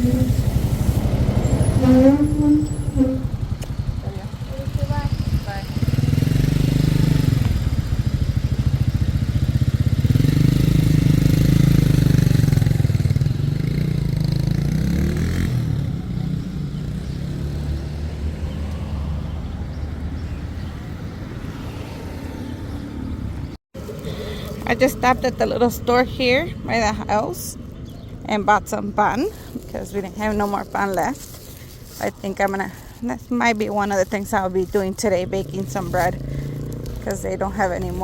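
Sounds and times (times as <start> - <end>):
motorcycle engine revving past: 0.0 - 20.2, 35.0 - 38.0.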